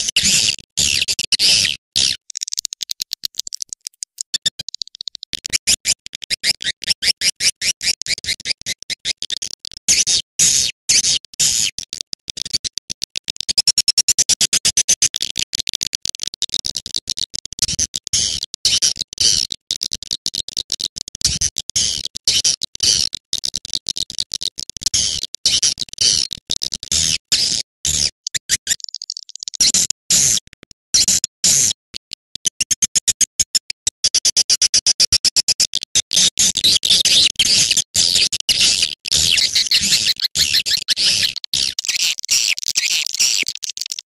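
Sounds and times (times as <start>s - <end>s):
swiftlets chirping and twittering: 28.4s - 29.7s, 37.1s - 44.0s.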